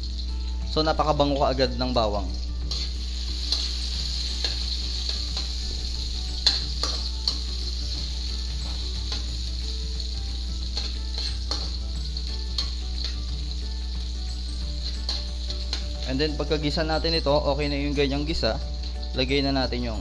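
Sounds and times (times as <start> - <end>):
onions sizzling in hot oil: 0.0 - 20.0
metal spatula scraping a wok: 2.7 - 9.4, 10.3 - 13.2.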